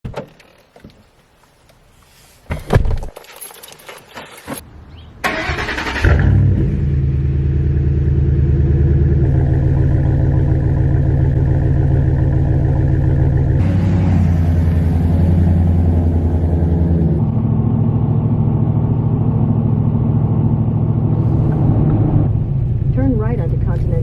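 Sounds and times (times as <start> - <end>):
keys rattling and clicking: 3.1 - 4.6
truck engine cranking and idling: 5.2 - 24.0.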